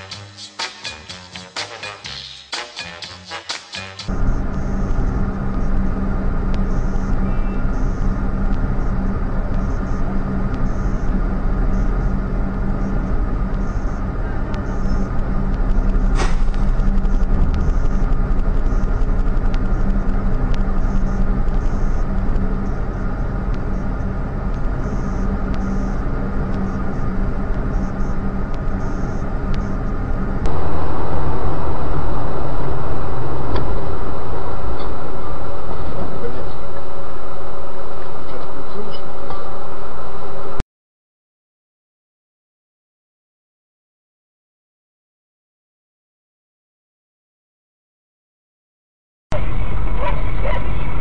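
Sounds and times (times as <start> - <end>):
street noise: 0.0 - 40.6, 49.3 - 51.0
vehicle engine idling: 4.1 - 39.4.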